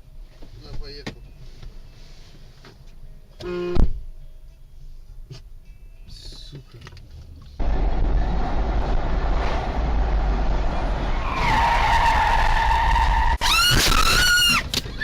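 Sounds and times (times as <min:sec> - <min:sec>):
road rumble: 0:00.0 - 0:13.6
car tyres squealing: 0:07.6 - 0:15.0.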